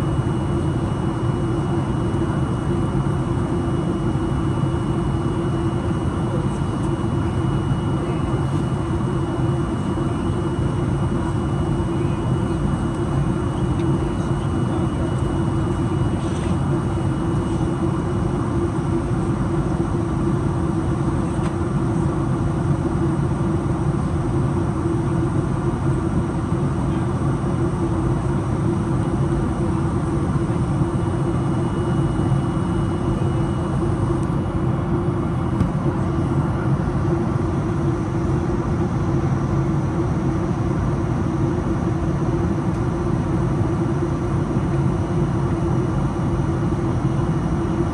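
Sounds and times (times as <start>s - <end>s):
jet engines roaring in cabin: 0.0s - 47.9s.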